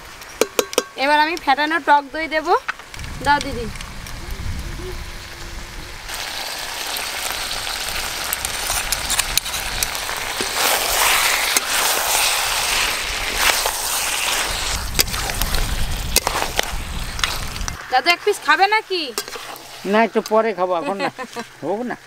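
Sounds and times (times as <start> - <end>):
meat sizzling in a pan: 1.9 - 21.8
spatula clicks and scrapes: 19.1 - 19.6.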